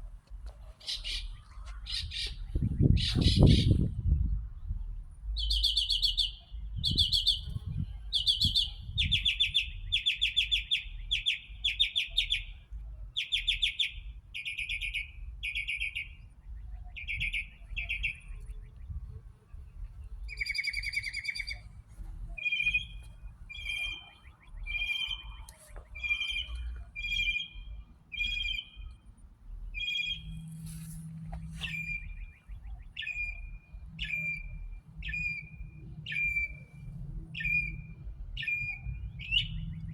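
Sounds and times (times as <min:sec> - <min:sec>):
songbird singing trilled phrases: 0:00.8 - 0:04.0, 0:05.3 - 0:12.6, 0:13.2 - 0:30.6, 0:31.4 - 0:39.9
low background rumble: 0:16.2 - 0:39.9.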